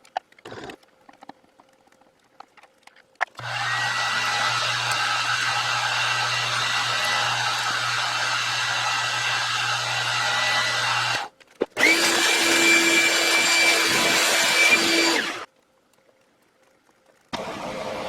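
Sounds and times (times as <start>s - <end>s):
machine whining: 3.4s - 15.5s
power tool running: 3.4s - 15.5s.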